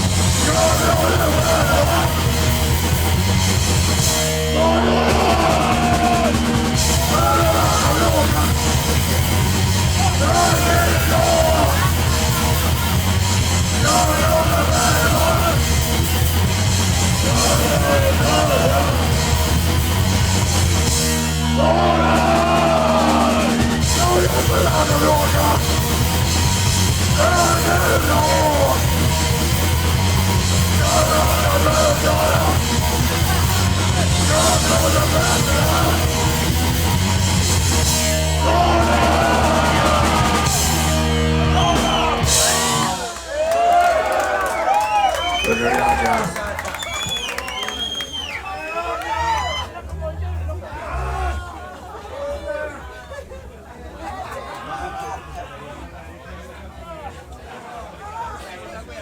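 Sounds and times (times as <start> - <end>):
shouted vocals: 0.0 - 2.9, 4.0 - 16.3, 16.9 - 19.2, 21.4 - 36.8, 37.8 - 50.0, 50.6 - 52.0
punk band playing: 0.0 - 48.3.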